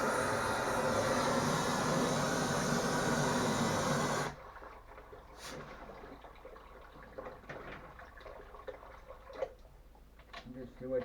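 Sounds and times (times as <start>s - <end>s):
gas cutting torch hissing roar: 0.0s - 4.4s.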